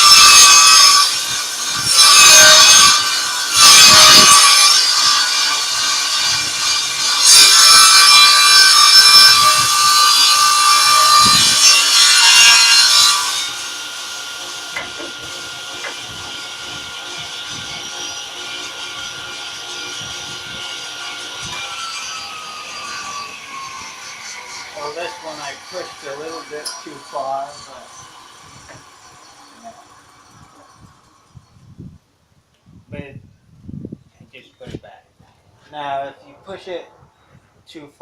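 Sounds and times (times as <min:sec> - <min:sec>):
table saw cutting wood: 0:00.0 - 0:31.3
saw blade whining: 0:00.0 - 0:31.9.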